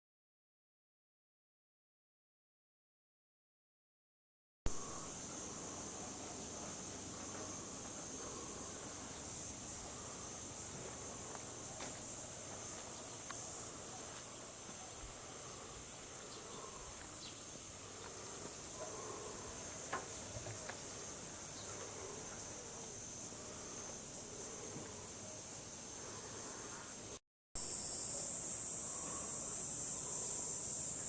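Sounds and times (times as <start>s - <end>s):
insects singing: 4.7s - 31.0s.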